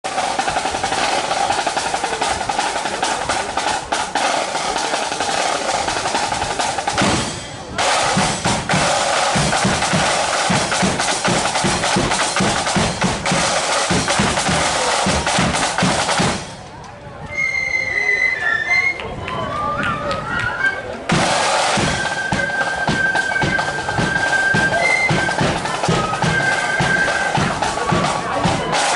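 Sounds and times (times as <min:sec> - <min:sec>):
rattling snare drums: 0:00.0 - 0:16.7, 0:21.1 - 0:28.9
bass drum beating: 0:06.2 - 0:16.5
flutes playing: 0:17.2 - 0:28.9.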